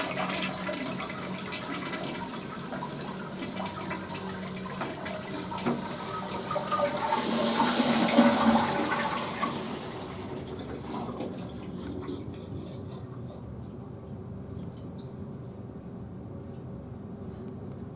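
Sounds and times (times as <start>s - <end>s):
toilet flushing: 0.0s - 13.4s.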